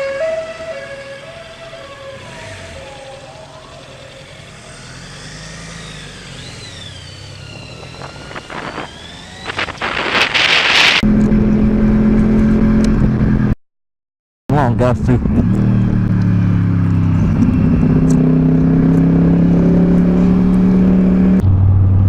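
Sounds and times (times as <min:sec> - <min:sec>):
emergency siren wailing: 0:00.0 - 0:04.7
vehicle engine: 0:00.0 - 0:13.6, 0:14.5 - 0:22.0
engine at high revs: 0:01.8 - 0:13.6, 0:15.2 - 0:21.4.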